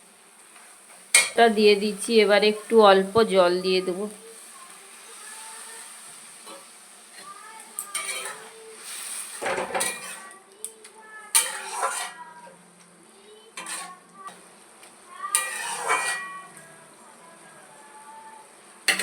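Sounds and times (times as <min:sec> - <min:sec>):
spatula scraping a pan: 0:04.6 - 0:10.4, 0:11.3 - 0:12.4, 0:13.5 - 0:14.5, 0:15.2 - 0:16.7.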